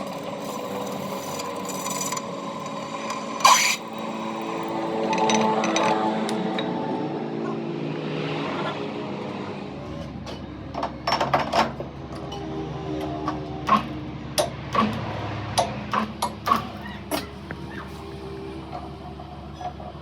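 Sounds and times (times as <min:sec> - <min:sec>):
metal parts clinking: 0:00.0 - 0:06.0.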